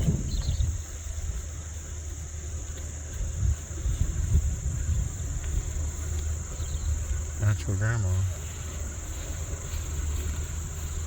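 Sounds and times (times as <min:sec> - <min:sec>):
wind on microphone: 0:00.0 - 0:01.6, 0:03.0 - 0:07.4
insects trilling: 0:00.0 - 0:11.0.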